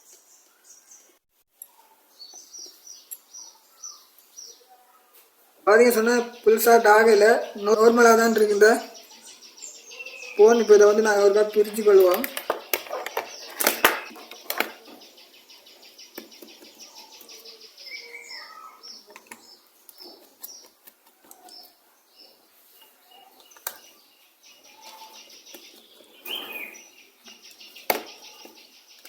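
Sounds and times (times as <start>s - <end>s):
small birds chirping: 0.0s - 29.0s
sharp clicks: 12.0s - 14.8s.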